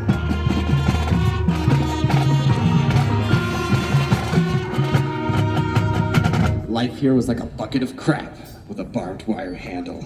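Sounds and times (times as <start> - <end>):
marching band playing: 0.0 - 6.8.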